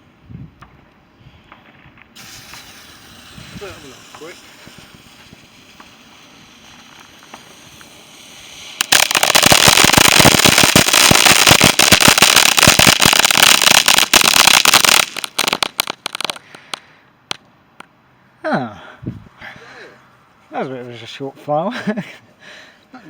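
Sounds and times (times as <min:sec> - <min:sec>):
firework crackling bangs: 0:01.5 - 0:17.4
rising hiss: 0:02.2 - 0:17.0.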